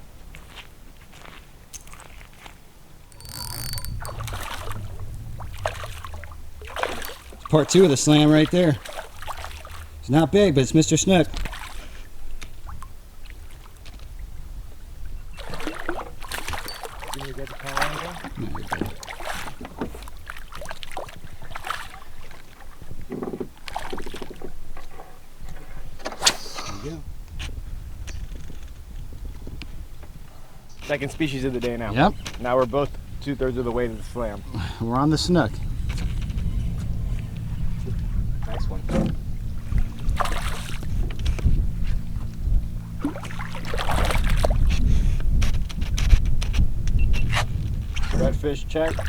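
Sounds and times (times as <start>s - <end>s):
splashing or rustling: 3.2s - 10.0s, 11.3s - 14.1s, 15.4s - 22.8s, 39.6s - 42.1s, 43.0s - 46.8s
wind buffeting microphone: 3.2s - 10.4s, 26.9s - 49.0s
water sloshing around boat: 3.2s - 26.3s, 29.7s - 49.0s.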